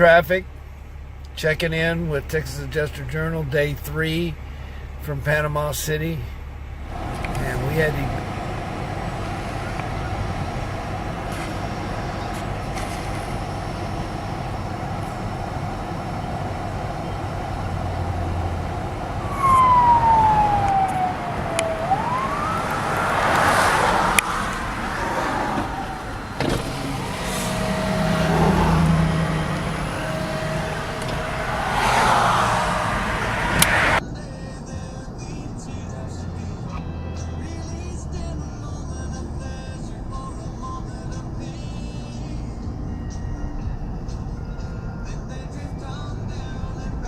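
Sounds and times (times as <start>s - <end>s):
vehicles passing by: 0.0s - 34.1s
road and traffic noise: 0.0s - 47.0s
siren wail: 14.3s - 34.0s.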